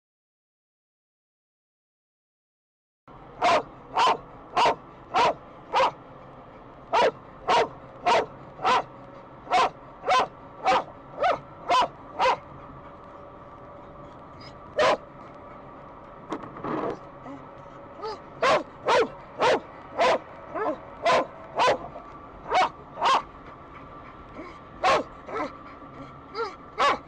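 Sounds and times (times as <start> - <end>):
dog barking: 3.4 - 6.0, 6.9 - 8.9, 9.5 - 12.5, 14.4 - 15.0, 18.0 - 23.3, 24.4 - 25.6, 26.4 - 27.0.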